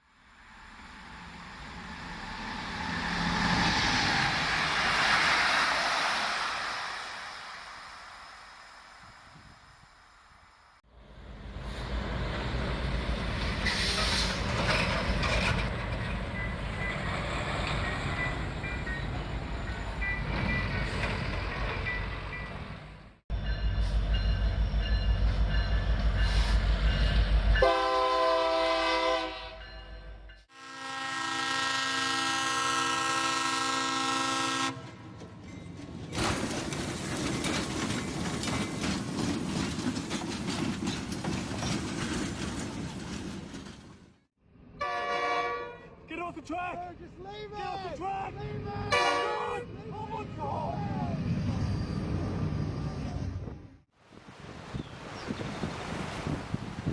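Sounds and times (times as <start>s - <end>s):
train rumbling: 0.0s - 53.9s
train air horn blasts: 27.5s - 29.8s, 30.5s - 35.0s, 44.8s - 46.0s, 48.9s - 49.7s
wheel clatter: 35.2s - 44.2s.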